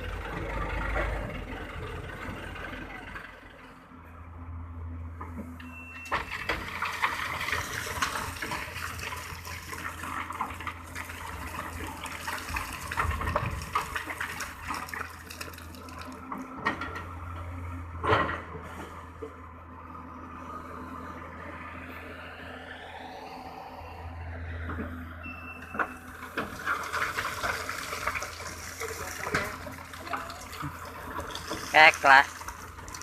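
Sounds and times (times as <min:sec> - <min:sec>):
low engine hum: 0:00.0 - 0:33.0
gravel pouring into truck bed: 0:06.2 - 0:16.2, 0:26.2 - 0:33.0.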